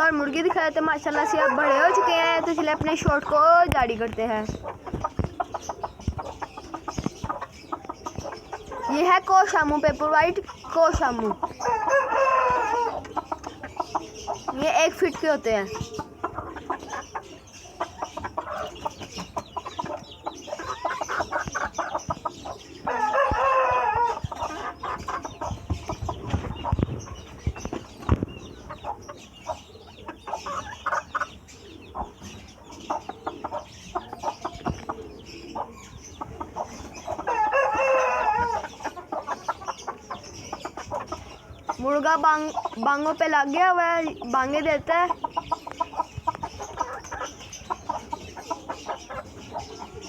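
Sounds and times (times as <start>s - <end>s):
chickens clucking: 0.0s - 50.0s
rooster crowing: 1.3s - 2.2s, 11.7s - 13.0s, 22.9s - 24.2s, 37.3s - 38.6s.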